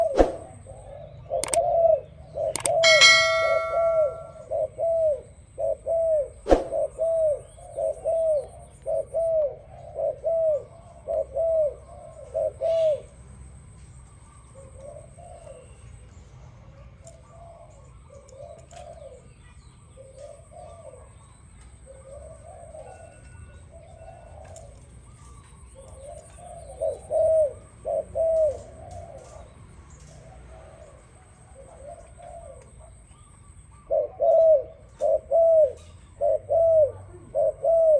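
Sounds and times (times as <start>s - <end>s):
dove cooing: 0.0s - 13.2s, 16.7s - 37.9s
sharp click: 1.4s - 1.6s, 2.5s - 4.3s.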